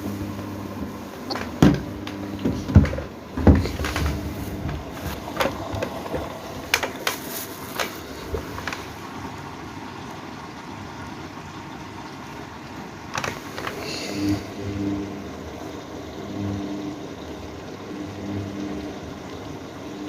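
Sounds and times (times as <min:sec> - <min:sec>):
washing machine humming: 0:00.0 - 0:20.0
dull thumps and clicks: 0:01.3 - 0:08.9.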